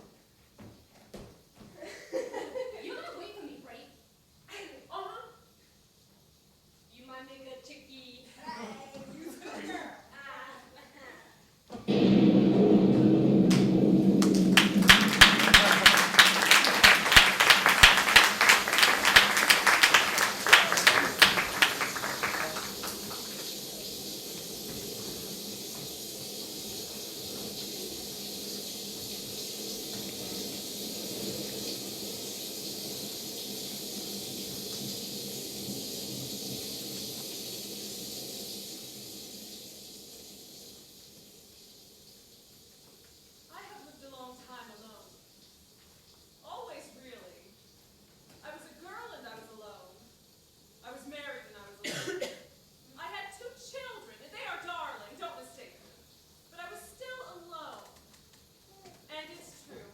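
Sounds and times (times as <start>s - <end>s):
steady hiss: 0.0s - 59.9s
audience applause: 13.5s - 24.1s.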